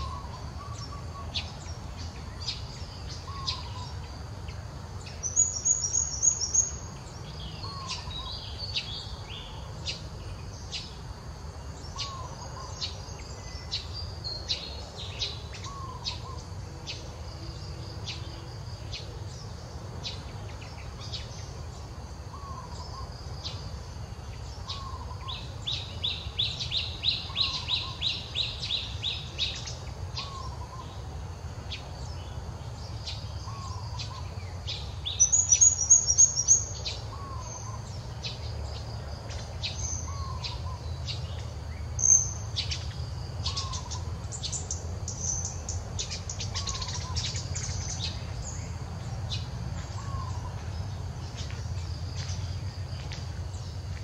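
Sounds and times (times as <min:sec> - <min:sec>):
birds chirping: 0:00.0 - 0:54.0
loud fast bird trill: 0:42.0 - 0:48.2.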